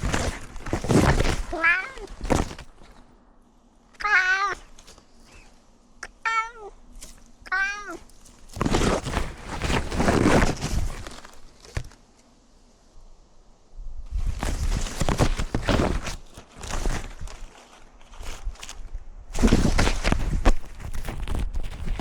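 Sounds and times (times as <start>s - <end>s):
loud rustling: 0.0s - 6.0s, 6.8s - 12.3s, 14.2s - 22.0s
cat meowing: 1.5s - 2.2s, 4.0s - 4.7s, 6.0s - 6.8s, 7.4s - 8.1s.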